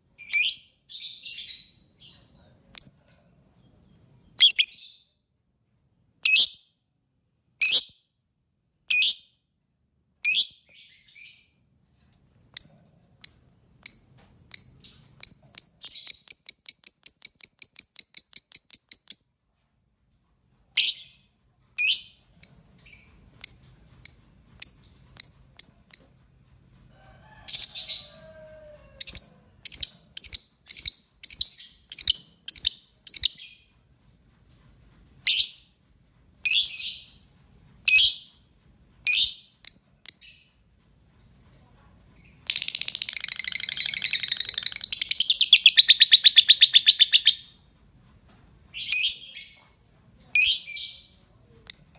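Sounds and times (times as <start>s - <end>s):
shrill high bird chirps: 4.4s - 5.1s, 12.6s - 19.2s, 29.0s - 33.7s, 42.2s - 47.6s.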